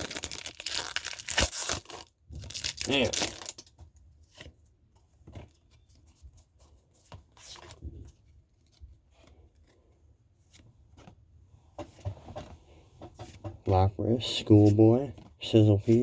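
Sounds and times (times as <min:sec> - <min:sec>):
foil wrapper rustling: 0:00.0 - 0:03.7.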